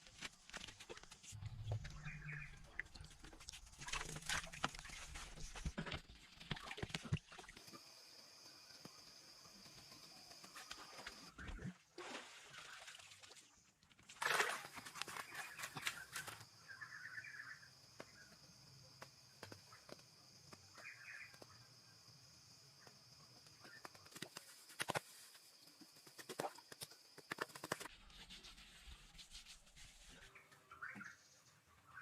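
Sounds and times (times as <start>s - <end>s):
faint bird chirps: 1.4s - 3.0s, 15.1s - 18.6s, 19.5s - 22.2s, 30.0s - 32.0s.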